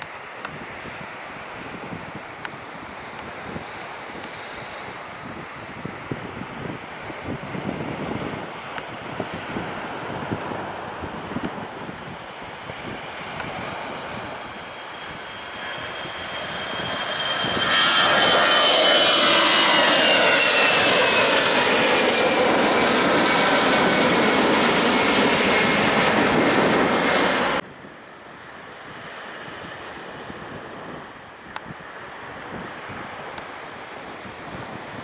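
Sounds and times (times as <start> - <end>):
wind: 0.0 - 35.0
jet airliner passing overhead: 0.2 - 27.6
high whine sliding down in pitch: 14.3 - 27.6.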